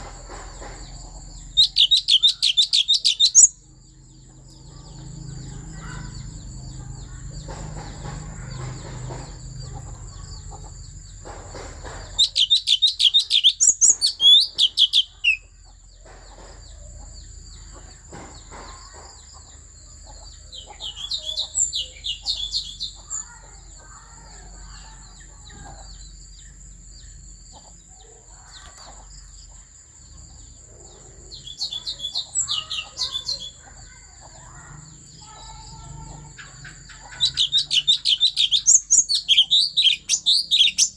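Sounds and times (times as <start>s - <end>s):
songbird ringing notes: 0.0s - 7.6s, 12.1s - 15.6s, 31.2s - 40.9s
quiet bird twittering: 0.0s - 40.9s.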